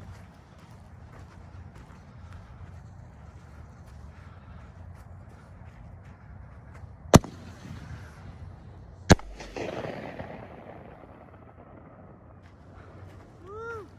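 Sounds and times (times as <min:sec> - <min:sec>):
freeway traffic noise: 0:00.0 - 0:13.9
firework bangs: 0:07.2 - 0:08.2, 0:09.1 - 0:12.6
rushing firework tail: 0:07.2 - 0:13.1.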